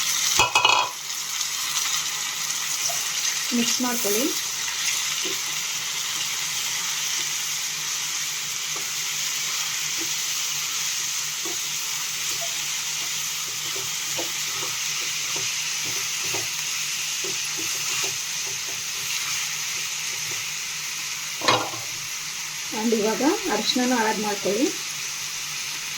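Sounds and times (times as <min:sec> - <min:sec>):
chicken sizzling in hot oil: 0:00.0 - 0:25.9
spoon stirring in a pan: 0:11.3 - 0:20.5.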